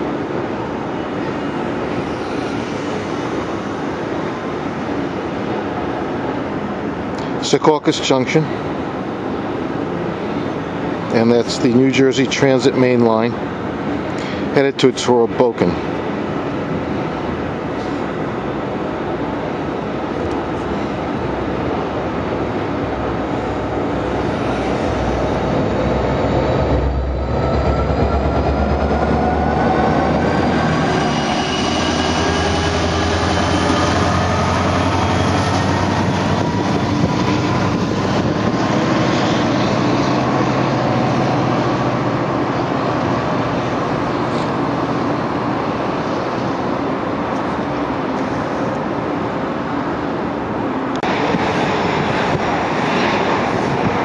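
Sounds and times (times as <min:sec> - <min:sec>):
diesel locomotive engine running: 0:00.0 - 0:54.0
train wheels rolling on rails: 0:16.0 - 0:54.0.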